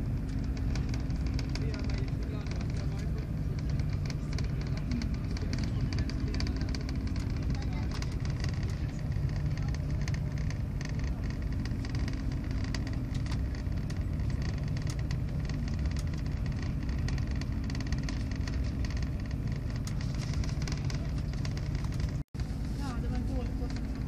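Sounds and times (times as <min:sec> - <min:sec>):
light ticks and rattles: 0:00.0 - 0:24.0
train wheels rumbling on rails: 0:00.0 - 0:24.0.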